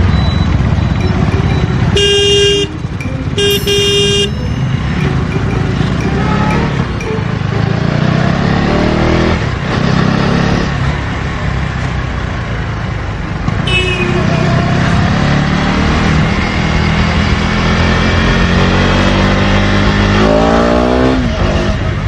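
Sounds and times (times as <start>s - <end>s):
vehicle horn: 0.6s - 6.9s, 13.6s - 14.5s
wind and road noise: 5.7s - 22.0s.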